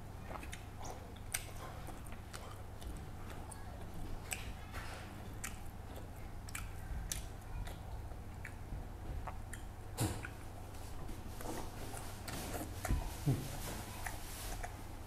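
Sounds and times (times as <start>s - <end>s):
person chewing and smacking: 0.0s - 14.9s
wet mouth clicks: 4.2s - 4.6s, 5.4s - 8.6s.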